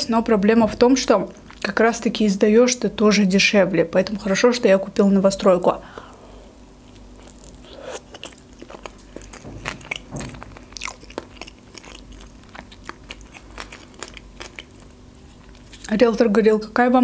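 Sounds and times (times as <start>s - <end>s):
person chewing with wet clicks: 6.9s - 15.8s.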